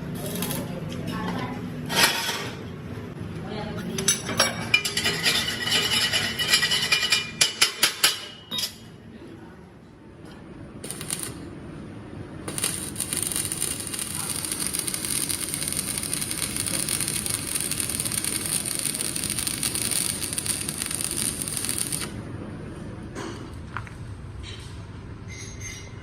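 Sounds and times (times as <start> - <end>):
welding arc crackling: 10.8 - 11.5, 12.4 - 22.2.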